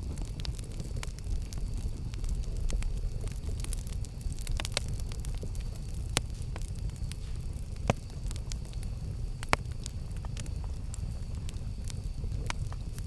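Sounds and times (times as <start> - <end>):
campfire flames rumbling: 0.0 - 13.0
fire crackling and popping: 0.0 - 13.0.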